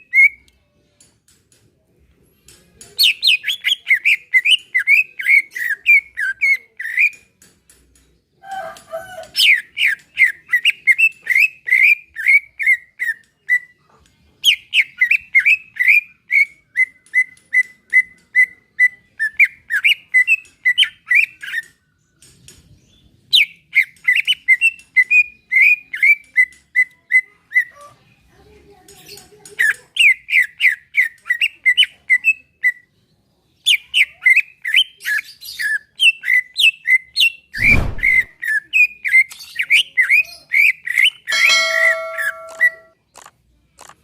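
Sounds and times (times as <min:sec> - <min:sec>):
short low thump: 0:37.6 - 0:38.3.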